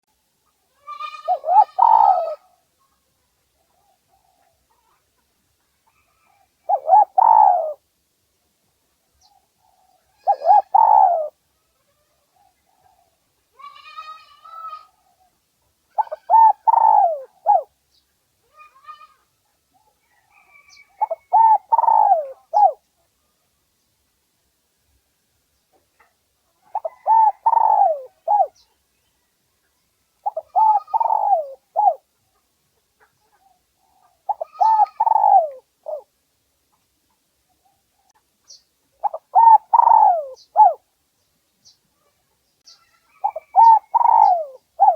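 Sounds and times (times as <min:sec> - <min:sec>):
dove cooing: 0:01.0 - 0:02.6, 0:06.0 - 0:07.8, 0:09.6 - 0:11.4, 0:16.0 - 0:17.7, 0:20.1 - 0:22.8, 0:26.7 - 0:28.6, 0:30.2 - 0:32.1, 0:33.4 - 0:36.1, 0:39.0 - 0:40.8, 0:43.1 - 0:44.9.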